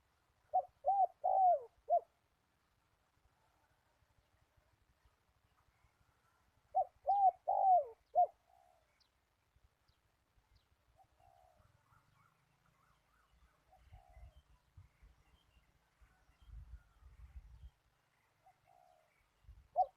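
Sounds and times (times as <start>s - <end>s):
dove cooing: 0.5s - 2.1s, 6.7s - 8.9s, 18.4s - 19.9s.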